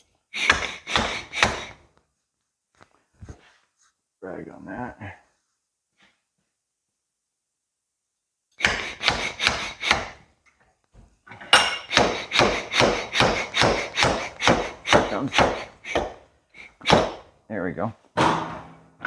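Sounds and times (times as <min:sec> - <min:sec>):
hammer blows on metal cylinder: 0:11.6 - 0:16.2.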